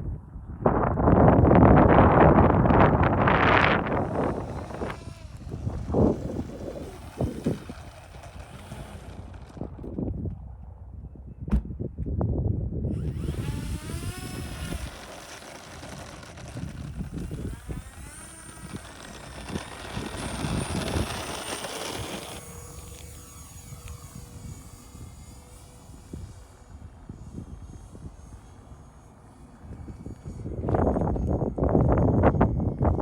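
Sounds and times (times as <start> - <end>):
wind gusting on microphone: 0.0 - 33.0
model plane motors whining: 1.0 - 10.5, 12.8 - 33.0.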